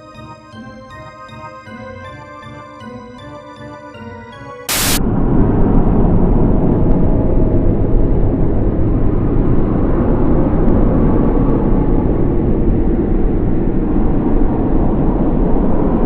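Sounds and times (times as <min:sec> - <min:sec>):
music: 0:00.0 - 0:05.0
sharp burst of hiss: 0:04.7 - 0:05.0
low rumbling drone: 0:04.7 - 0:16.0.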